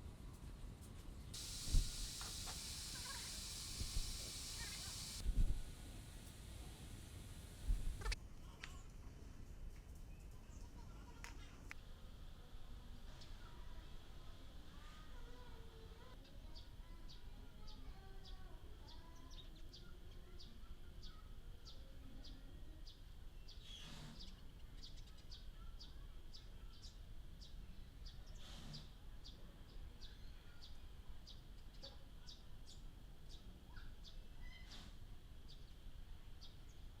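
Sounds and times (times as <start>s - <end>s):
small birds chirping: 1.4s - 5.2s.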